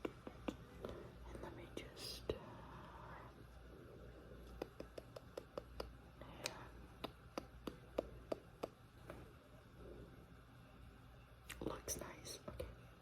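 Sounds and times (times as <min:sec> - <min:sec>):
light sharp taps: 0:04.5 - 0:09.2.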